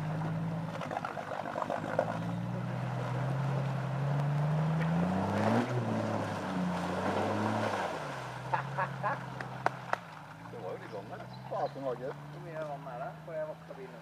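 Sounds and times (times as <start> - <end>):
car engine revving: 0.0 - 14.0
water rushing and splashing: 0.0 - 14.0.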